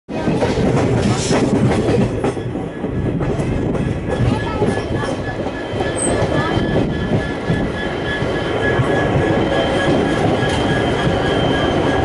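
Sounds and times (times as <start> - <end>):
train wheels clattering over rail joints: 0.1 - 12.0
faint high wheel squeal: 4.2 - 12.0.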